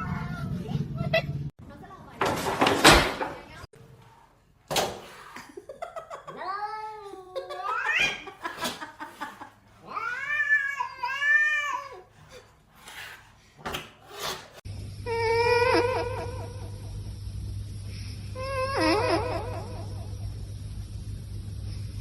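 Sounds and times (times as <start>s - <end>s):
steady hum: 14.7s - 22.0s.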